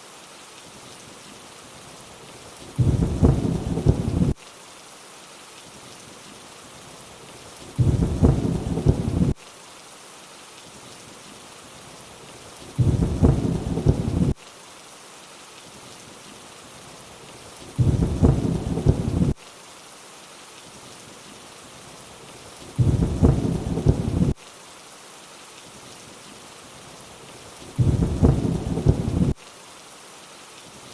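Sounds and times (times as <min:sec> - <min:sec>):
steady rain hiss: 0:00.0 - 0:30.9
deep rumble of thunder: 0:02.8 - 0:04.4, 0:07.8 - 0:09.4, 0:12.8 - 0:14.4, 0:17.8 - 0:19.4, 0:22.8 - 0:24.4, 0:27.8 - 0:29.4.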